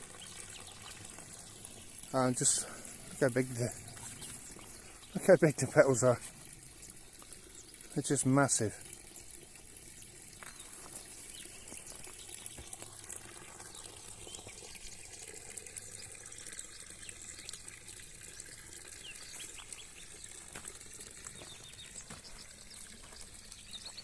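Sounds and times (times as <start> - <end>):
small bird chirps: 21.3 - 24.0.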